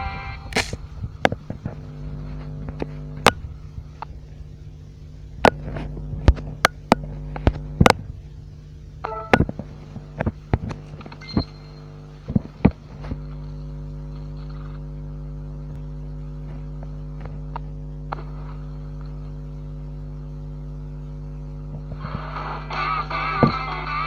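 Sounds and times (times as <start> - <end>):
electric appliance humming: 0.0 - 24.0
sharp clicks and knocks: 5.4 - 8.0
music: 9.0 - 9.5, 22.0 - 24.0.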